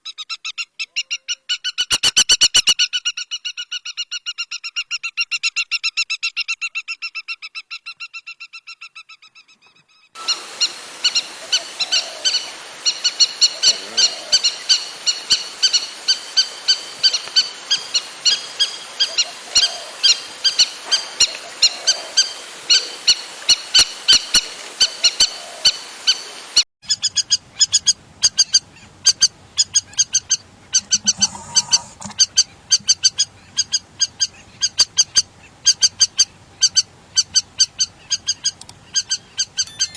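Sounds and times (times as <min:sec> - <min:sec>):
lapwing calling: 0:00.0 - 0:39.9.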